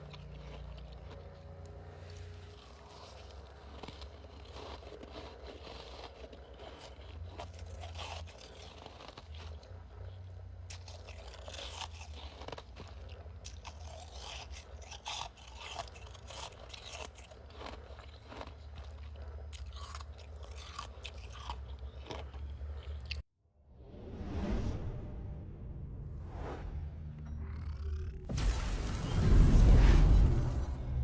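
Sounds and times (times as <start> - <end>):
frost being chewed: 0.0 - 23.3
steady low hum: 23.8 - 31.0.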